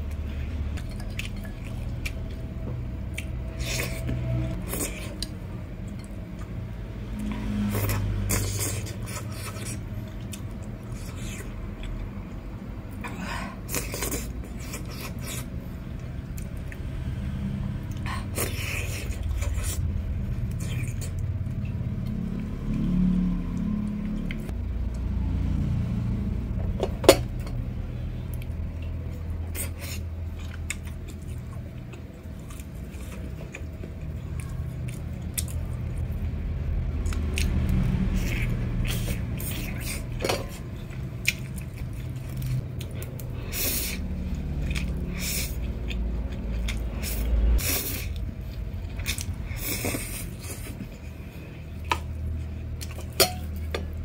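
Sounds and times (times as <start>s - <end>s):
chewing food: 0.0s - 12.2s, 27.4s - 54.0s
low steady rumble: 0.0s - 54.0s.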